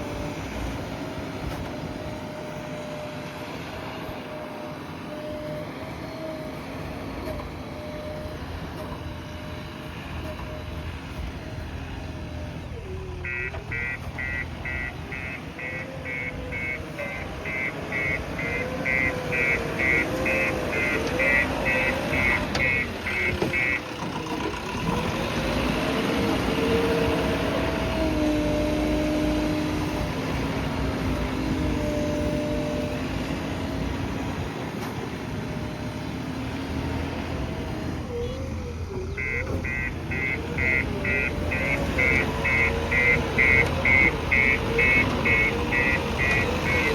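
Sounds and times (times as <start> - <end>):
diesel engine working: 0.0 - 46.9
reversing alarm beeping: 13.2 - 23.9, 39.1 - 46.9.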